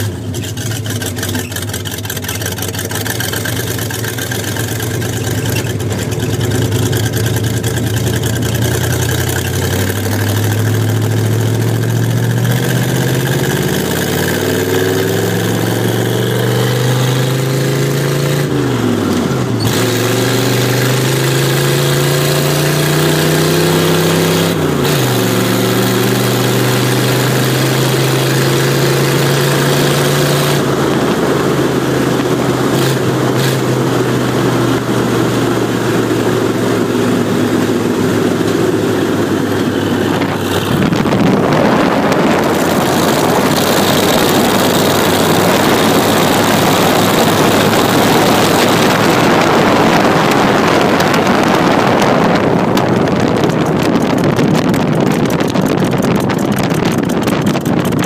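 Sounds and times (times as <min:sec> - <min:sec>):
car engine running: 0:00.0 - 0:58.0
wind rushing over microphone: 0:12.5 - 0:58.0.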